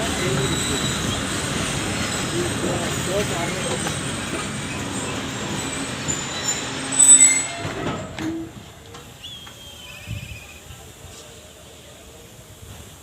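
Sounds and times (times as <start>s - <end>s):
train coaches rumbling and rattling: 0.0s - 13.0s
high wheel squeal: 0.2s - 2.4s, 3.4s - 8.5s.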